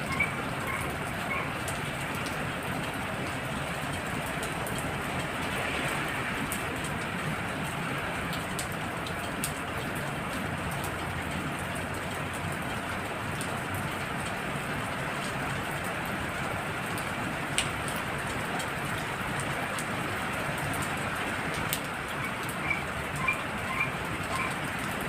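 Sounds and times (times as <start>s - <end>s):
frogs calling: 0.0s - 1.6s, 22.2s - 24.6s
heavy rain falling: 0.0s - 25.0s.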